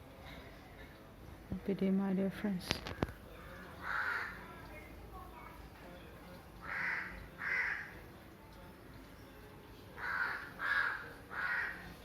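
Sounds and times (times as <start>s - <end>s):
crow cawing: 3.8s - 4.4s, 6.6s - 8.0s, 10.0s - 12.0s.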